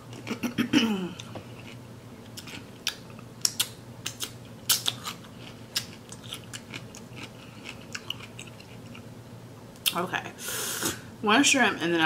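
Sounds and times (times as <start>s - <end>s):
crunching and chewing cucumber: 1.2s - 9.1s.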